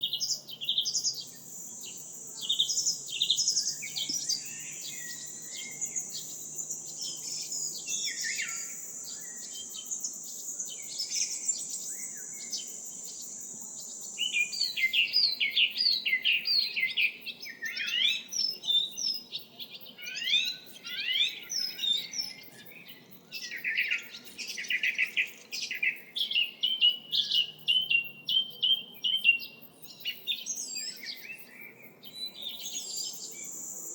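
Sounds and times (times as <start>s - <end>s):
songbirds chirping and trilling: 0.0s - 33.9s.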